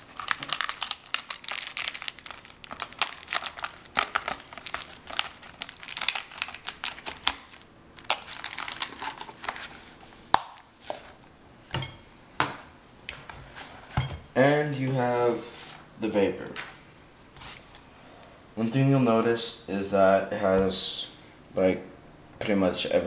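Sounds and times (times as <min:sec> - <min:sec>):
packaging crackling: 0:00.0 - 0:10.7.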